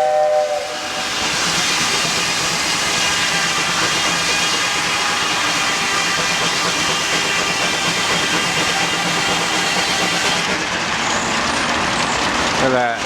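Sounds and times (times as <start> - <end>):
steam engine hissing: 0.0 - 13.0.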